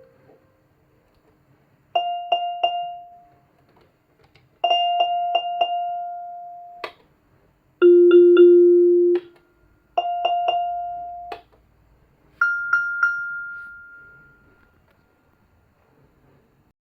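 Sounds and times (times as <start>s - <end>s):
bell-like keyboard notes: 7.8s - 9.2s, 10.0s - 11.3s, 12.4s - 14.9s.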